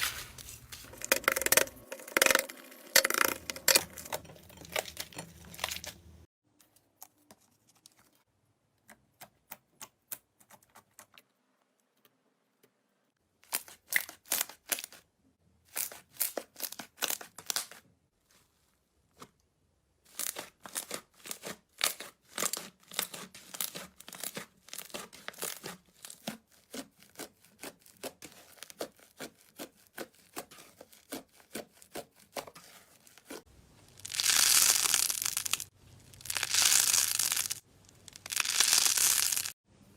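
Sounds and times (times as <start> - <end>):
slime crackling and popping: 33.9 - 39.6.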